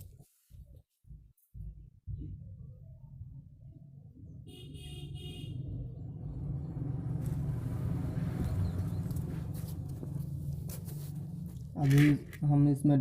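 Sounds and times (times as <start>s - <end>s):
passing vehicle rumble: 5.5s - 12.4s.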